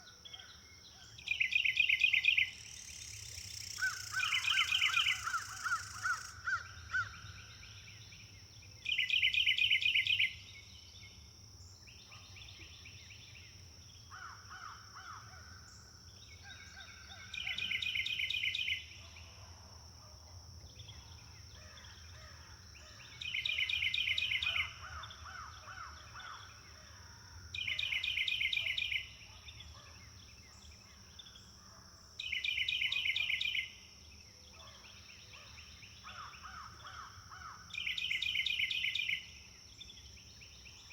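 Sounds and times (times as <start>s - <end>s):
softer bird calls: 0.0s - 7.2s
bird trilling: 3.6s - 6.3s.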